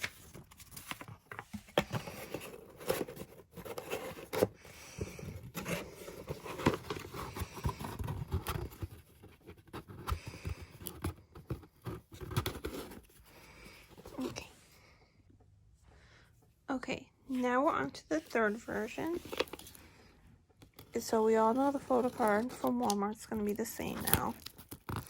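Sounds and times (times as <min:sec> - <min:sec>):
paper rustling: 0:00.0 - 0:13.2, 0:18.2 - 0:20.0, 0:21.0 - 0:25.0
cardboard box scraping: 0:01.2 - 0:13.2.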